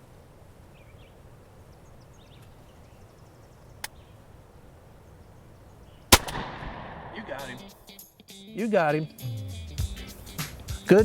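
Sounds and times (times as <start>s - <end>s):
faint bird chirps: 0.6s - 6.1s.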